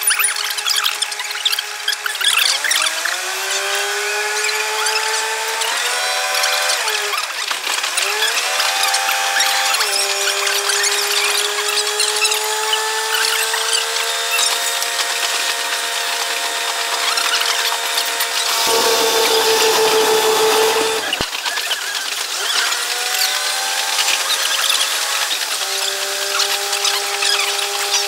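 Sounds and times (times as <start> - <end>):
sped-up railcar engine whine: 18.5 - 21.3.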